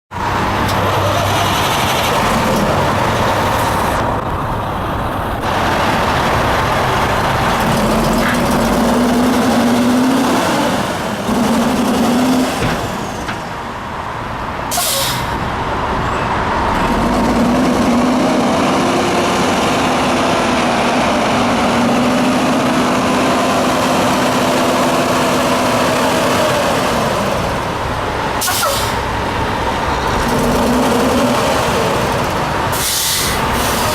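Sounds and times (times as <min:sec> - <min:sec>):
diesel truck engine revving: 0:00.1 - 0:33.9
air-brake hiss: 0:14.7 - 0:15.4, 0:28.4 - 0:29.0, 0:32.7 - 0:33.9.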